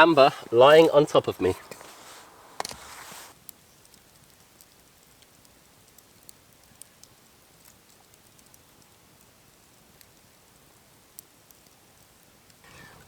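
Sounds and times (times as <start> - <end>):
faint small ticks: 2.6 - 13.0.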